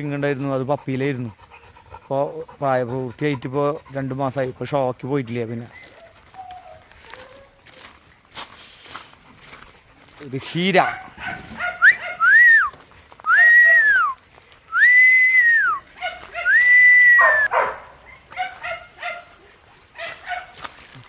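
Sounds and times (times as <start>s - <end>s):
dog yelping and whining: 5.4s - 7.9s, 10.8s - 12.6s, 16.0s - 19.3s
person whistling: 11.8s - 12.7s, 13.3s - 15.8s, 16.5s - 17.5s.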